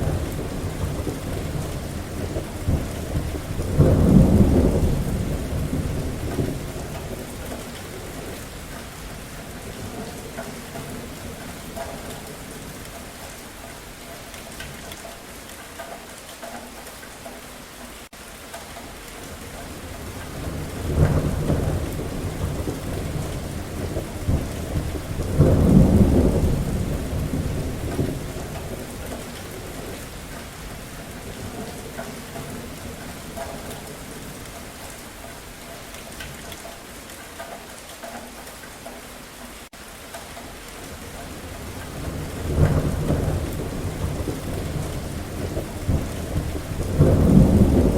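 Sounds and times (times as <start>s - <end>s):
thunder rumbling: 0.0s - 12.9s, 19.3s - 34.9s, 40.9s - 47.9s
steady rain: 0.0s - 47.9s.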